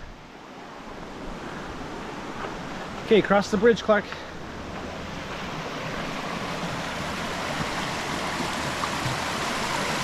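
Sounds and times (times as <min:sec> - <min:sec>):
creek water rushing: 0:00.0 - 0:10.0.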